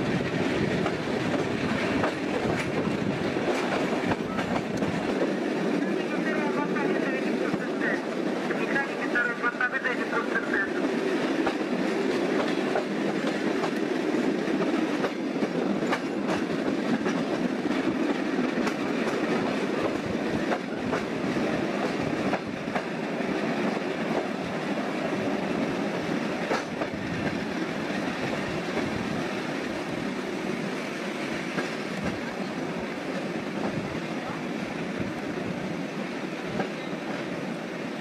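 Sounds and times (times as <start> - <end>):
train wheels rumbling on track: 0.0 - 38.0
wheels clicking over rail joints: 0.1 - 5.8, 10.8 - 29.1.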